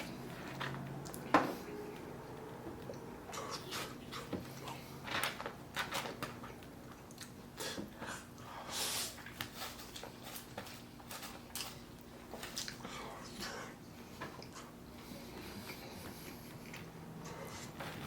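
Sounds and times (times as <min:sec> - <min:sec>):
chewing with wet mouth clicks: 0:06.4 - 0:07.5, 0:11.3 - 0:12.9, 0:15.4 - 0:18.0.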